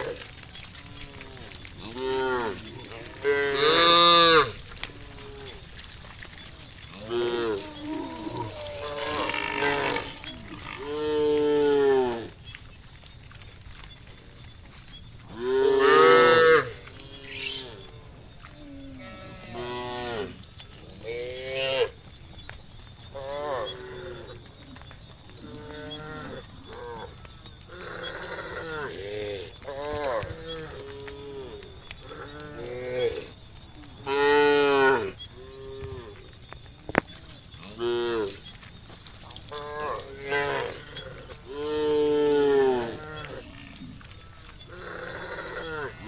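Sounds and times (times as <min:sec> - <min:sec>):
cattle mooing: 0:07.0 - 0:12.3, 0:15.4 - 0:20.4.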